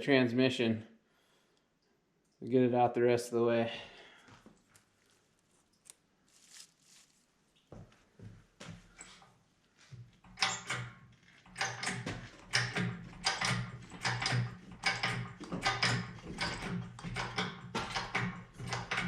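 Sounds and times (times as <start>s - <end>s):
jack being pumped: 10.2s - 19.0s.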